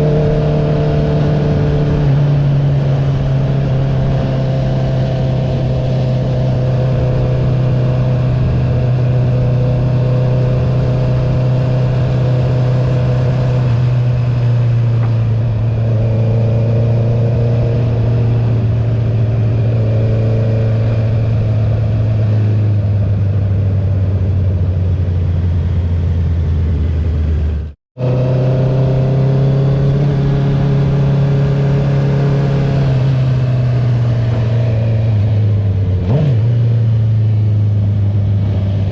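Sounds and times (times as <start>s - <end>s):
motorcycle engine while riding: 0.0s - 38.9s.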